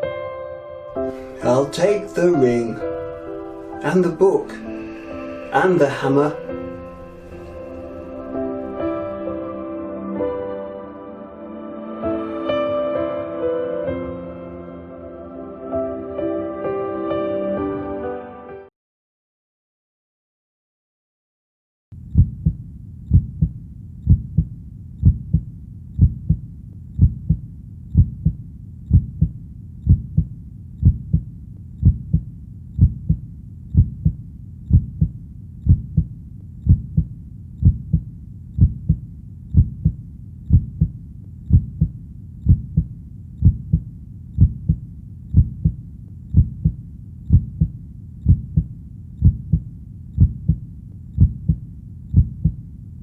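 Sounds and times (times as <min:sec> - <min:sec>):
heartbeat double thump: 0:22.0 - 0:52.7.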